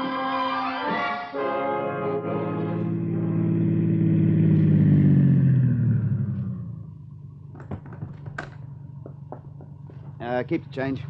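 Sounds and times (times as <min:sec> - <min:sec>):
car engine idling: 0:02.7 - 0:11.0.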